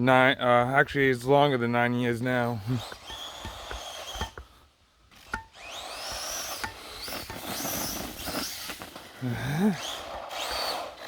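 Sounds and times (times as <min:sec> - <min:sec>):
electric motor whining: 0:02.6 - 0:04.4, 0:05.2 - 0:11.0.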